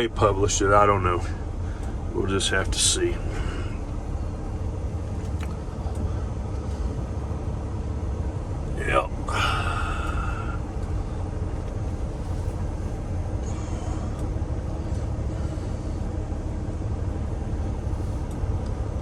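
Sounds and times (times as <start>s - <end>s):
truck diesel engine rumbling: 0.0s - 19.0s.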